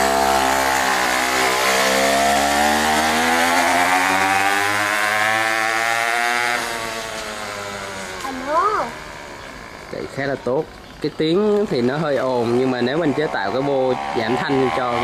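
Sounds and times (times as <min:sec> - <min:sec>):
lawn mower engine revving: 0:00.0 - 0:15.0.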